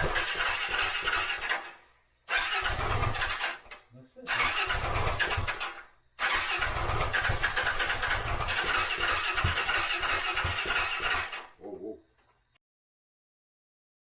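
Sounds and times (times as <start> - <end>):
engine mechanical clatter: 0.0 - 11.6
motorcycle engine starting: 0.0 - 11.6.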